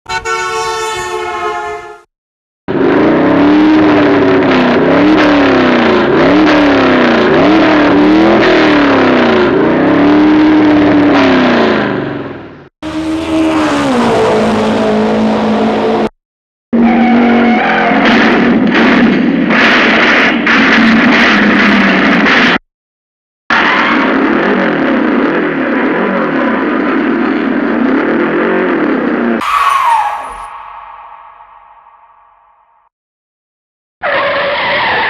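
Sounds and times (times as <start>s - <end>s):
car engine revving loudly: 2.7s - 12.1s, 12.8s - 16.1s.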